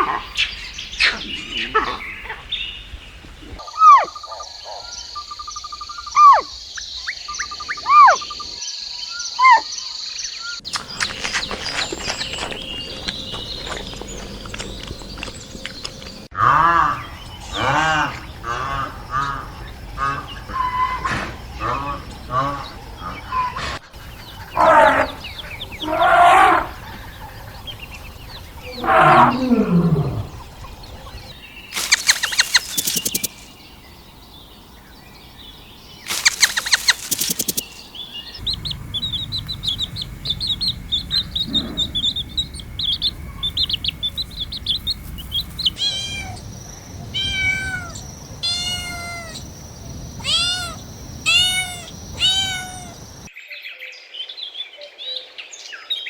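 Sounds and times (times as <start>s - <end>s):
high twittering: 10.6s - 53.3s
meowing animal calls: 24.4s - 26.9s, 28.6s - 30.5s, 31.8s - 33.3s, 45.7s - 49.4s, 50.2s - 53.3s
short arched animal calls: 31.8s - 33.4s, 36.1s - 37.8s.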